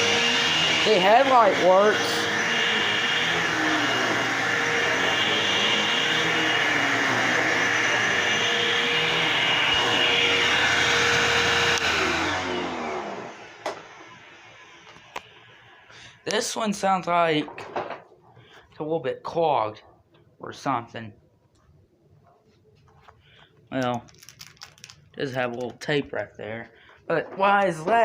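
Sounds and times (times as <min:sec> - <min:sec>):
vacuum cleaner motor whine: 0:00.0 - 0:15.9.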